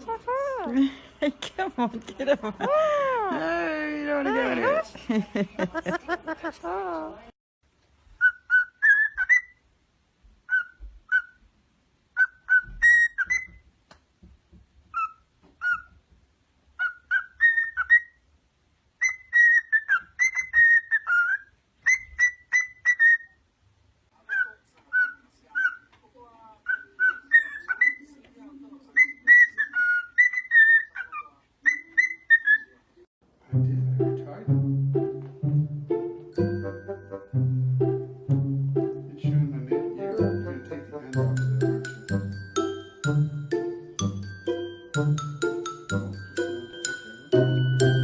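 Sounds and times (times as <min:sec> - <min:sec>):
parrot whistling chirpy notes: 0:08.2 - 0:09.6, 0:12.2 - 0:13.6.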